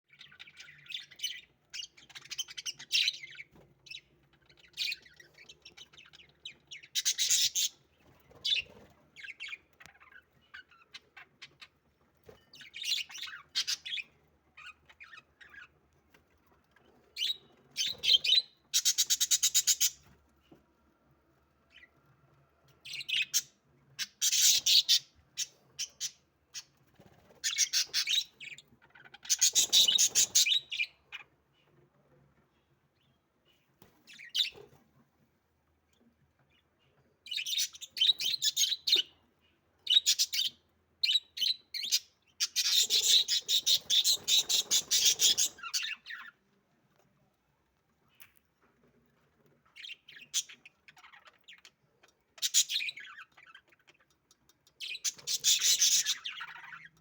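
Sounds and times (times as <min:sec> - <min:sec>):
budgerigars chirping: 0:00.1 - 0:11.7, 0:12.6 - 0:15.7, 0:17.2 - 0:20.0, 0:22.8 - 0:26.7, 0:27.4 - 0:31.3, 0:37.3 - 0:39.2, 0:39.9 - 0:46.3, 0:52.4 - 0:54.0, 0:54.8 - 0:56.9.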